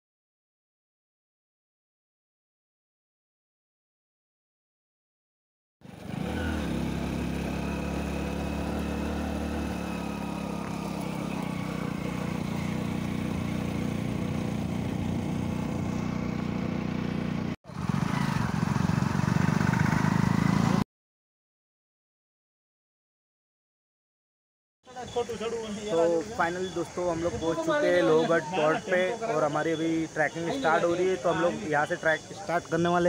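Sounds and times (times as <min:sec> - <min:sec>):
motorcycle engine running: 0:05.8 - 0:20.8.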